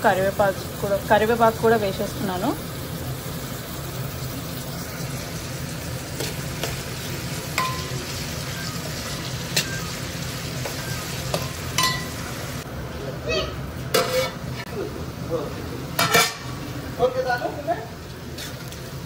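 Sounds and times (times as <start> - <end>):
onions sizzling in hot oil: 0.0 - 19.0
spoon clinking and scraping pan: 7.6 - 8.2, 9.5 - 9.9, 10.6 - 12.3, 13.9 - 14.4, 16.0 - 16.5.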